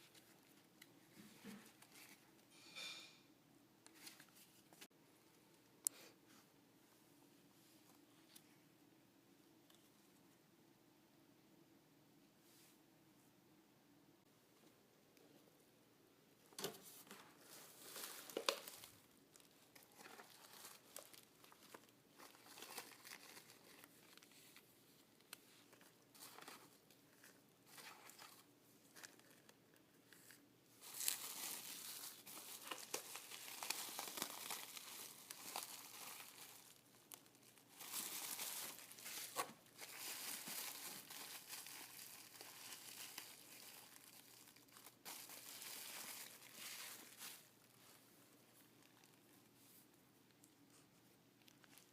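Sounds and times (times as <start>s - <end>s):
packaging crinkling and tearing: 17.8s - 24.7s, 27.7s - 47.6s.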